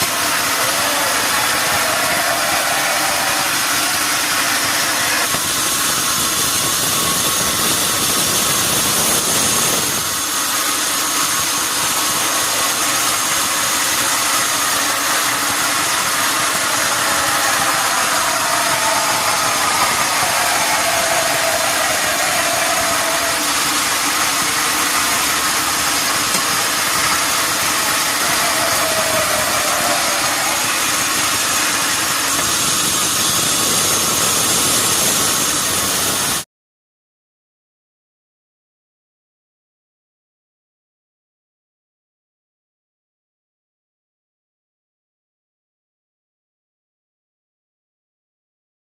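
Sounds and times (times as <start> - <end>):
sawmill machinery running: 0.0 - 36.4
faint whine sliding down: 14.5 - 34.0.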